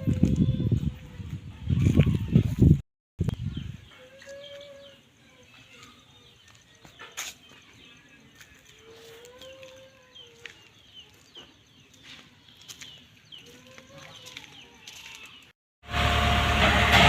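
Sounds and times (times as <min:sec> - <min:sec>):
small birds chirping: 0:03.2 - 0:15.6.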